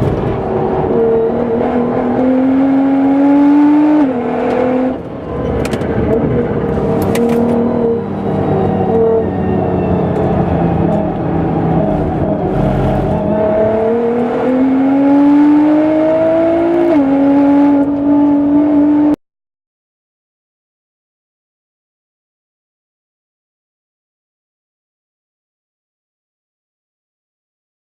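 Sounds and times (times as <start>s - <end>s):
sports car engine revving: 0.0s - 19.2s.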